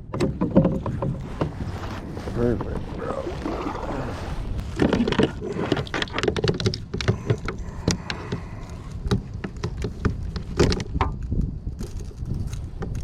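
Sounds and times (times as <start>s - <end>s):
wind rumble on microphone: 0.0s - 13.0s
rapid irregular clicks and taps: 4.8s - 13.0s.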